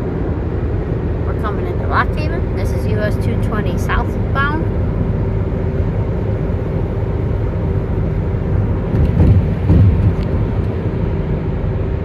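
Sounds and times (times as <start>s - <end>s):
car road noise rumble: 0.0s - 12.0s
bumps: 8.9s - 10.6s.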